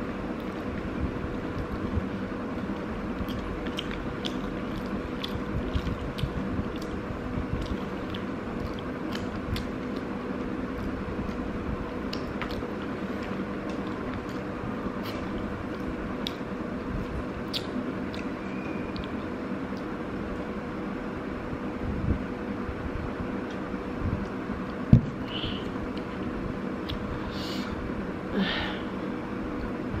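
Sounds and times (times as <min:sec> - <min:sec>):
low hum and rumble: 0:00.0 - 0:30.0
chewing and crunching food: 0:00.2 - 0:20.4.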